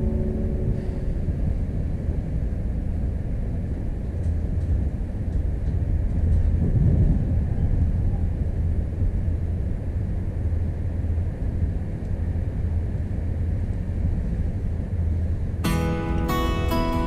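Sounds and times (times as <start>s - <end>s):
guitar music: 0.0s - 2.3s, 15.6s - 17.0s
train rumble inside carriage: 0.0s - 17.0s.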